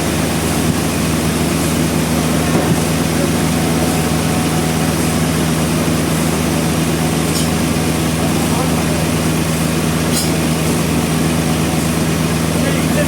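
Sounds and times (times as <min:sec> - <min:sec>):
sawmill engine running: 0:00.0 - 0:13.0.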